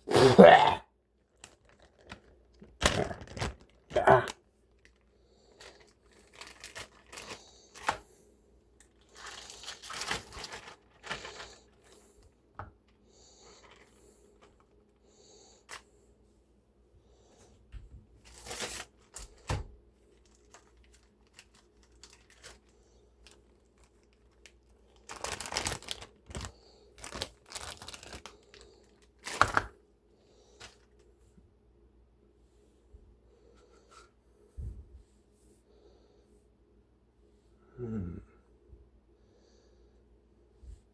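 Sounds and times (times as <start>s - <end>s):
crinkling and rustling: 1.1s - 15.0s, 15.6s - 16.0s, 17.3s - 29.8s, 30.5s - 31.2s.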